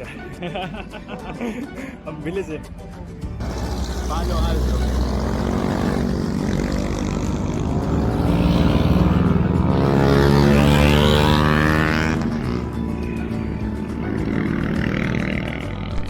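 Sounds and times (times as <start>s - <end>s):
motor vehicle passing: 3.4s - 16.0s.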